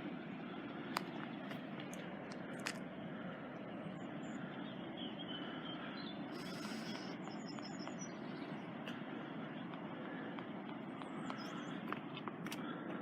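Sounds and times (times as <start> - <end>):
constant outdoor hiss: 0.0 - 13.0
faint high chirps: 5.0 - 8.6.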